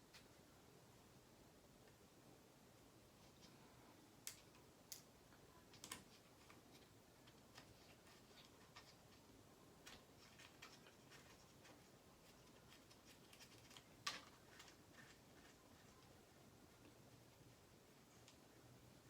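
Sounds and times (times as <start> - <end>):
small clicks and ticks: 4.2 - 9.2.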